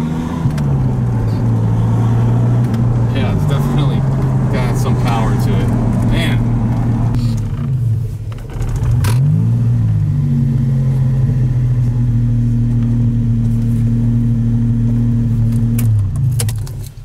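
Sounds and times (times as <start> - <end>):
car engine running and revving: 0.0 - 17.0.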